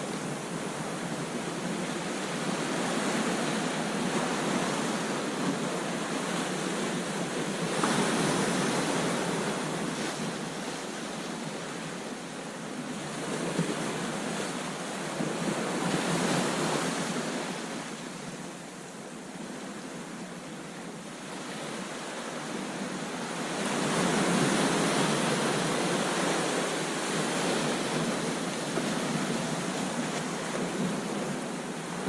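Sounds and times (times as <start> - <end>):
ocean waves crashing: 0.0 - 20.1, 21.2 - 32.0.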